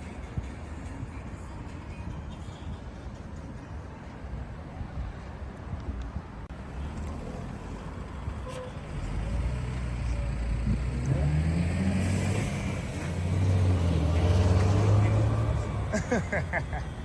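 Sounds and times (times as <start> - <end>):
vehicle engine speeding up: 8.9 - 16.0.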